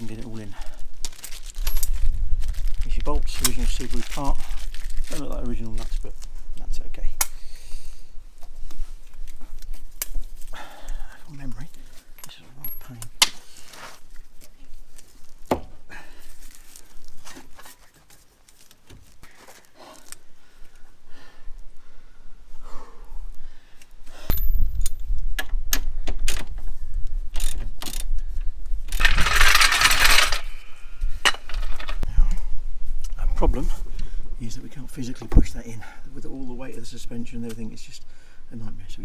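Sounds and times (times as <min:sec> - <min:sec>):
metal tools clinking: 0:01.2 - 0:02.0, 0:12.0 - 0:13.1, 0:28.9 - 0:30.5.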